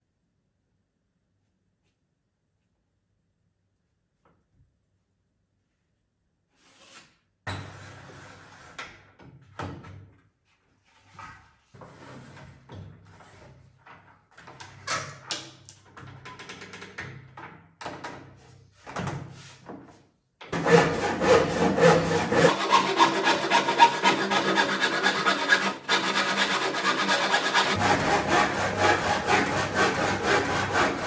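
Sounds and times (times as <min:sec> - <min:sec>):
hand saw cutting wood: 0:20.5 - 0:31.0.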